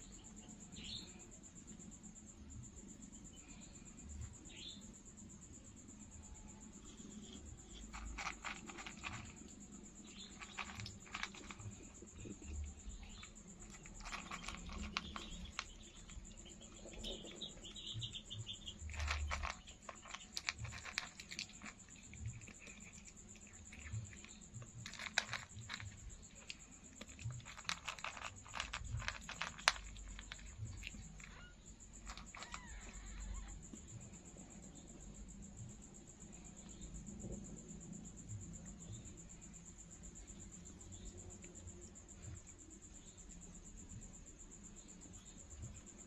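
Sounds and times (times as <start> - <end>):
cat crunching food: 7.0 - 17.9, 18.5 - 31.4.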